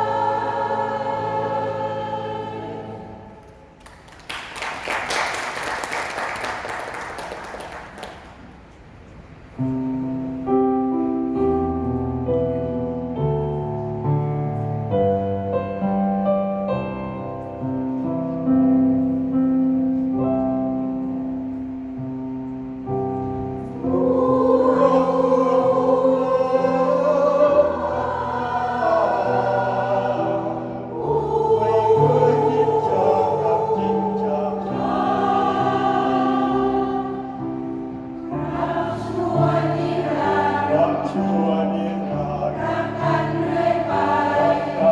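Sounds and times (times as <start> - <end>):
choir singing in harmony: 0.0 - 3.8, 23.2 - 44.9
piano playing: 0.0 - 3.8, 9.6 - 44.9.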